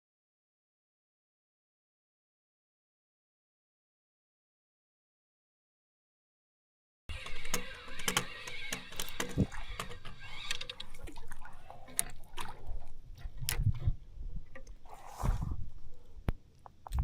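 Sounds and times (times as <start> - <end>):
water sloshing against kayak hull: 7.2 - 16.0
knocks and clunks on hull: 8.0 - 10.8.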